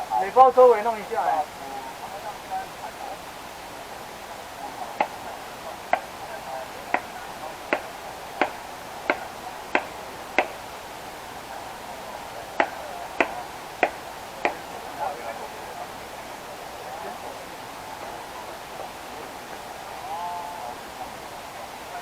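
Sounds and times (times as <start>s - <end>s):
sharp knocks: 7.7s - 10.6s, 12.6s - 14.6s.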